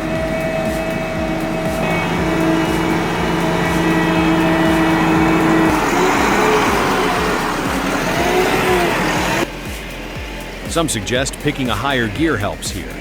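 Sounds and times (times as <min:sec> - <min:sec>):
heavy vehicle engine under load: 0:00.0 - 0:09.5.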